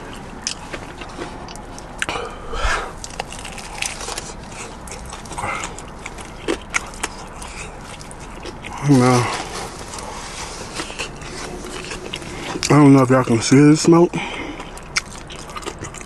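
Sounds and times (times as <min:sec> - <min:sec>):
crunchy biting and chewing: 0:00.0 - 0:16.0.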